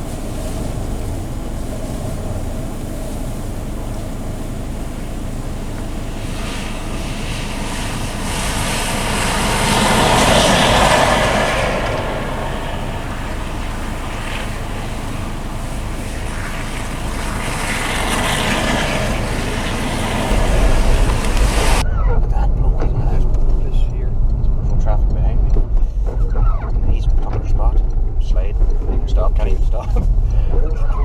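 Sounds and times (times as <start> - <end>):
car driving: 0.0 - 30.5
low rumble: 0.0 - 31.0
wind noise: 0.0 - 31.0.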